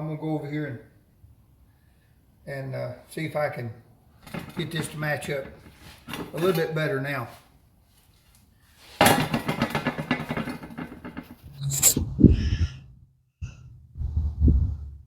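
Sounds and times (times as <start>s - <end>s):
metal scraping and rattling: 9.1s - 14.0s.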